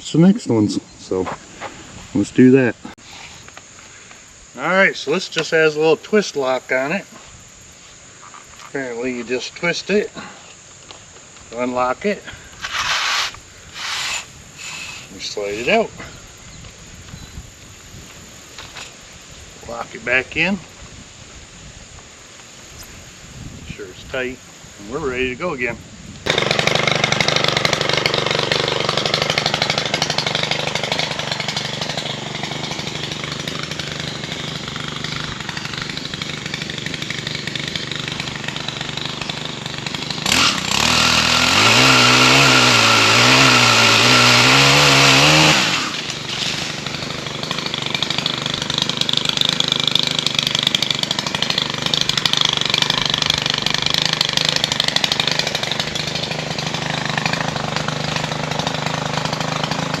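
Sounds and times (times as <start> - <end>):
pole saw engine revving: 12.6 - 15.8, 26.2 - 60.0.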